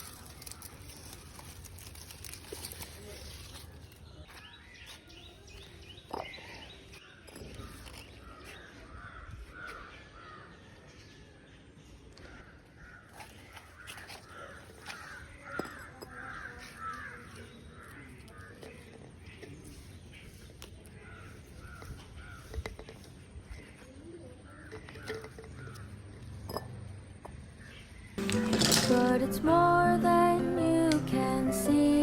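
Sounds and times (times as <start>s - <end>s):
birds calling: 12.0s - 28.3s.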